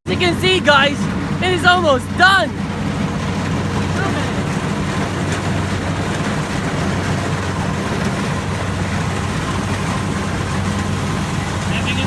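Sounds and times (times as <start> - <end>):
combine harvester droning: 0.0 - 12.0.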